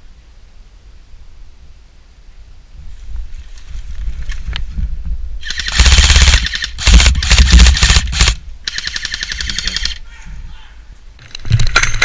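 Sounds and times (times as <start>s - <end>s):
airsoft gun firing bursts: 5.4s - 10.0s.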